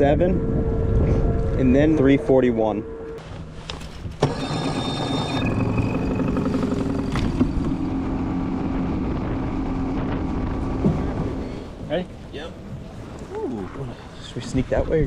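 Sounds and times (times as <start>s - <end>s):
outboard motor running: 4.2s - 11.9s.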